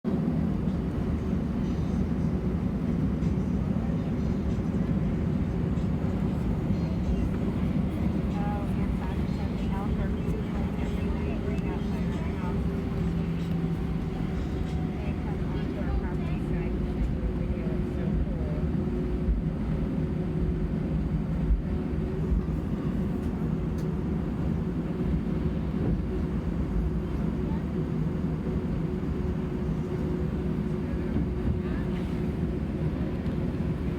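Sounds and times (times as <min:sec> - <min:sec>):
airliner cabin engine rumble: 0:00.1 - 0:33.9.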